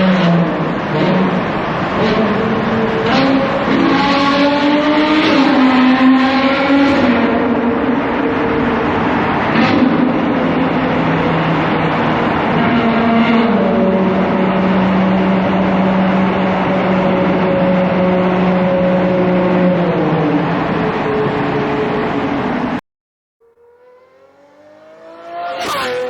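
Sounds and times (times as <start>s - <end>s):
sports car engine cruising: 23.4s - 26.0s.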